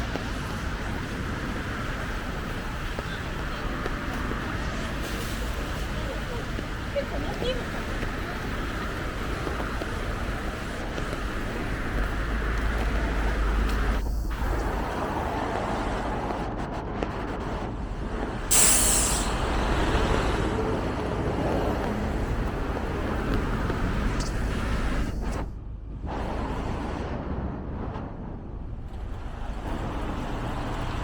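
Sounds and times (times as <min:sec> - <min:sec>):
traffic on wet street: 0:00.0 - 0:25.5, 0:28.7 - 0:31.0
short loud sharp hiss: 0:18.5 - 0:19.6.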